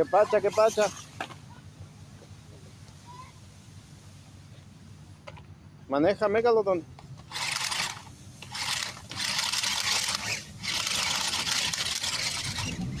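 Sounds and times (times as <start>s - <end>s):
rc truck motor hissing scrape: 0.0s - 1.4s, 7.2s - 13.0s.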